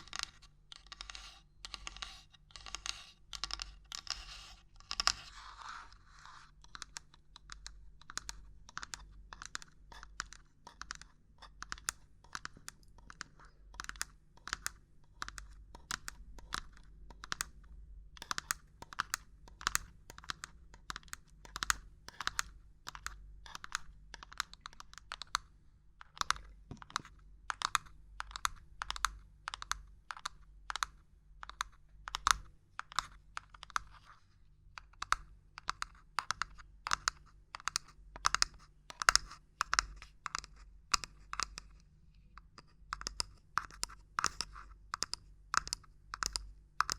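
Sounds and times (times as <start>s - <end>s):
fingers tapping on hard objects: 42.4s - 46.9s.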